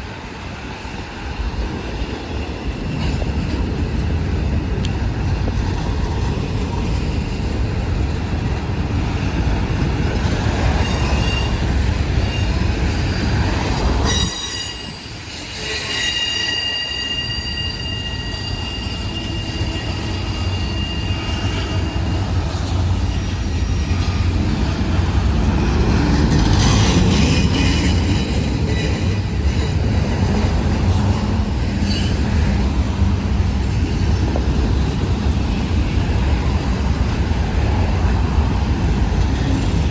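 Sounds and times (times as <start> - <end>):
freight train rumbling over rails: 0.0 - 39.9
steel wheels squealing on rail: 10.2 - 32.7.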